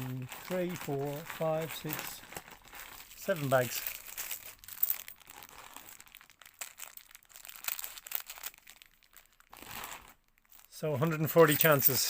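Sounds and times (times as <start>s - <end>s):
plastic coin bags crinkling: 0.0s - 12.0s.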